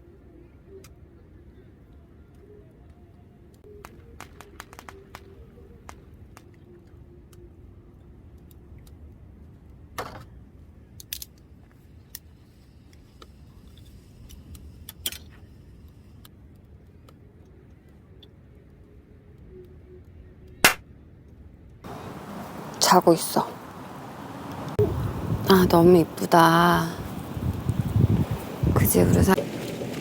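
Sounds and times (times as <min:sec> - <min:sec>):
low steady rumble: 0:21.9 - 0:30.0.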